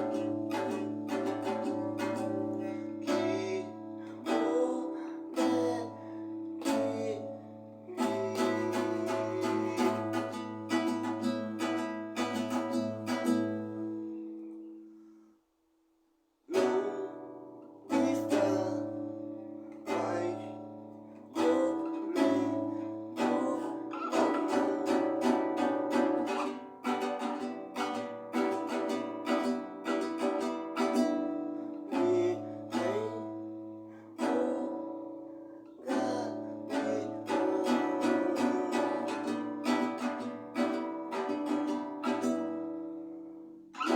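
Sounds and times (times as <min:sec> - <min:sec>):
acoustic guitar strumming chords: 0:00.0 - 0:15.2, 0:16.5 - 0:43.9.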